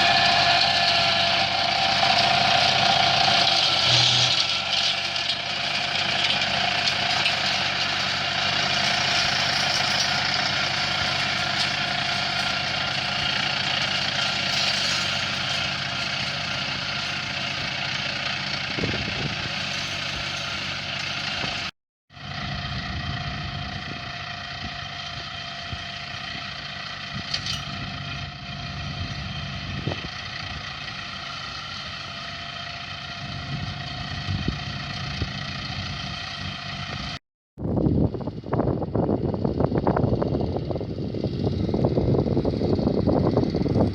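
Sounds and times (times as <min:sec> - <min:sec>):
small engine running: 0:00.0 - 0:43.9.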